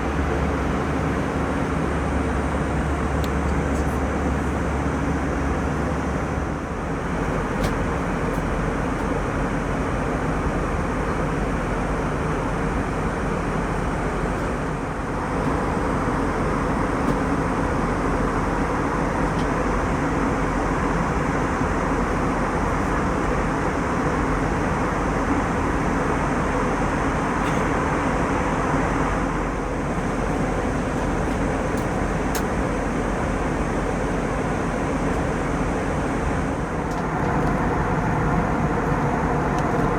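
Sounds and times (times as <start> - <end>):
jet engines and airflow: 0.0 - 39.9.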